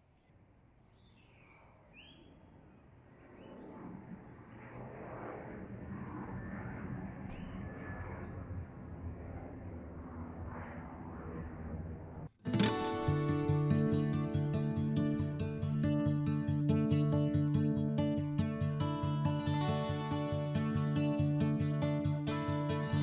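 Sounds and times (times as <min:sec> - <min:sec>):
outdoor rushing noise: 0:03.8 - 0:12.4.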